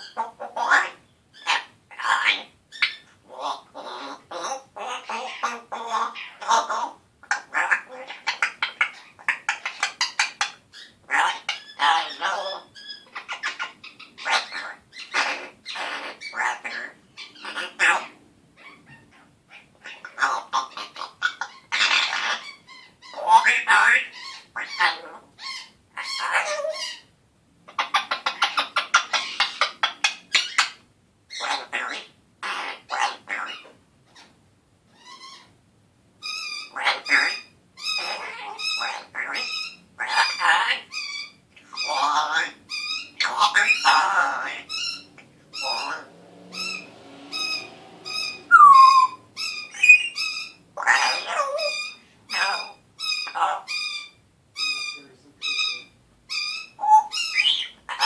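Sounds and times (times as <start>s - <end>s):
parrot harsh calls: 0.0s - 27.1s, 27.7s - 35.6s, 36.2s - 58.0s
parrot falling whistle: 48.2s - 50.2s.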